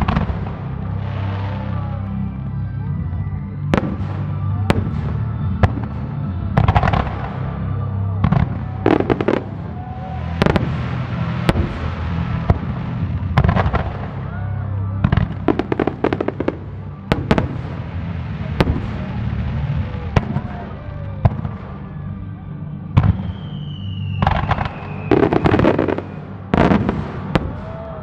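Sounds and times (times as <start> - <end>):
fireworks bangs: 0.0 - 1.9, 3.7 - 22.2, 23.0 - 28.0
fireworks crackling: 0.0 - 28.0
low rumble: 0.0 - 28.0
whistling firework shell: 23.0 - 28.0.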